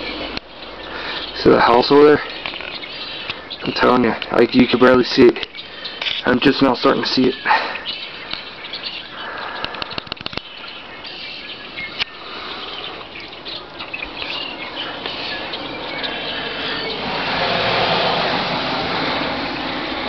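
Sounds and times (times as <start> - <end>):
clicks: 9.4 - 10.5
wind-driven snowstorm noise: 13.6 - 20.0.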